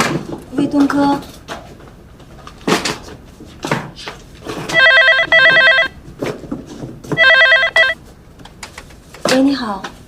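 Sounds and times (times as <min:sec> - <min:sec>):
telephone ringing: 0:04.7 - 0:06.0, 0:07.2 - 0:08.0.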